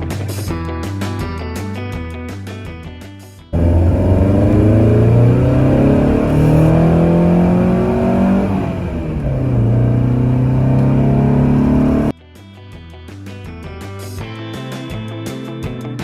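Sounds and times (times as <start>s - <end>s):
car engine revving: 3.6s - 12.1s.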